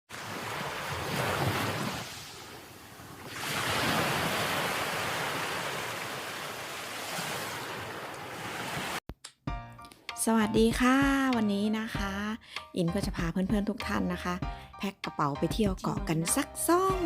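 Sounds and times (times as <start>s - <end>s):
sea waves breaking: 0.1s - 9.0s.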